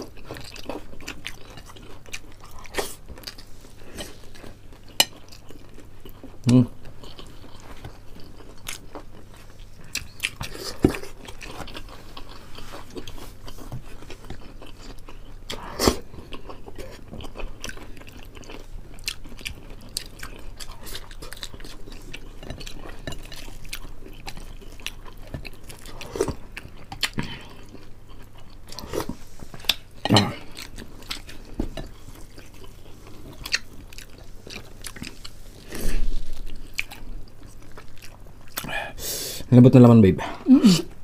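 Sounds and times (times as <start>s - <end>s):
person chewing and biting: 0.0s - 38.8s.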